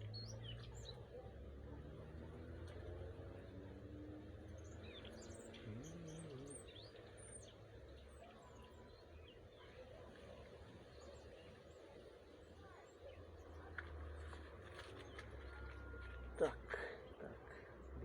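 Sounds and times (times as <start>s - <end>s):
small birds chirping: 4.4s - 9.4s.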